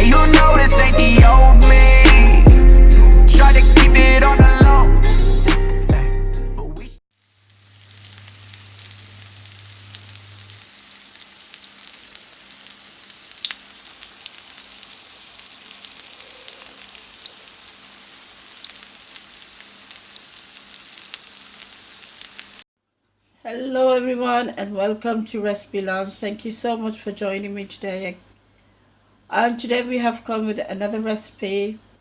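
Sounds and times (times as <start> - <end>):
food frying in hot oil: 7.1 - 22.6.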